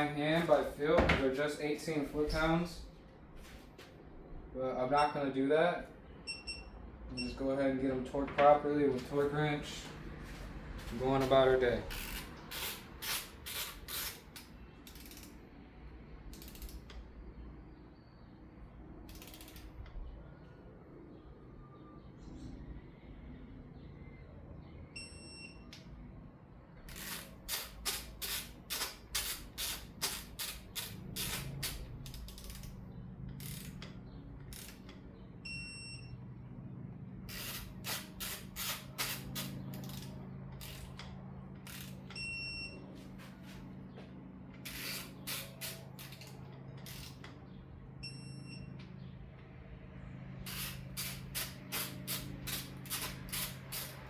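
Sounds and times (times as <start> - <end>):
torque wrench ratcheting clicks: 11.9 - 15.4, 16.3 - 17.0, 19.1 - 19.9, 26.9 - 35.0, 37.3 - 42.2, 44.6 - 47.4, 50.5 - 54.0.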